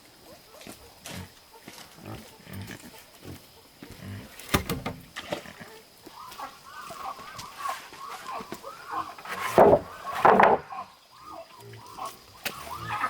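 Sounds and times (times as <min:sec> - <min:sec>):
chickens clucking: 0:05.5 - 0:13.0
sharp knocks: 0:09.5 - 0:10.6.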